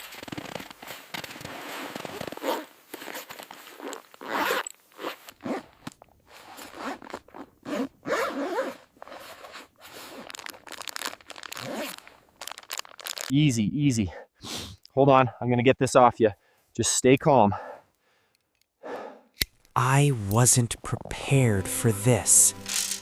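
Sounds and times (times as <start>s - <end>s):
crunching and rustling: 9.2s - 13.3s.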